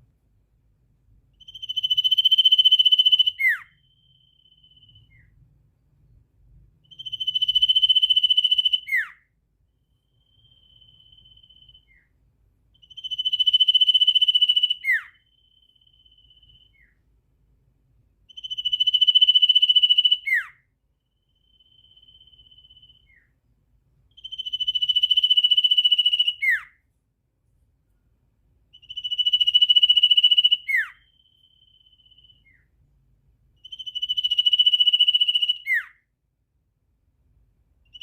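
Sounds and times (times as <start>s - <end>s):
songbird trilling: 1.4s - 5.3s, 6.8s - 9.2s, 10.1s - 12.1s, 12.8s - 17.0s, 18.3s - 20.6s, 21.2s - 23.3s, 24.1s - 26.8s, 28.7s - 32.7s, 33.6s - 36.0s.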